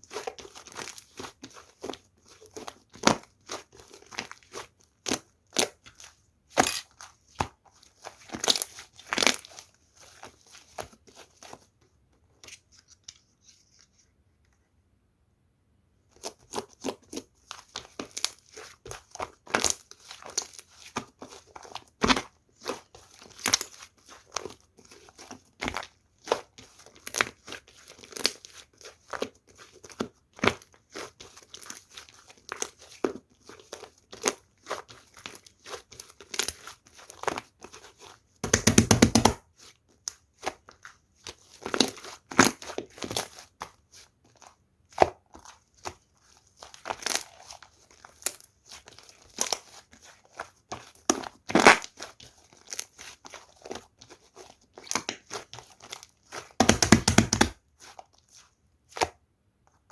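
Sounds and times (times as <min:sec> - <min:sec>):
slime popping and crackling: 0:38.4 - 0:39.4, 0:56.4 - 0:57.6.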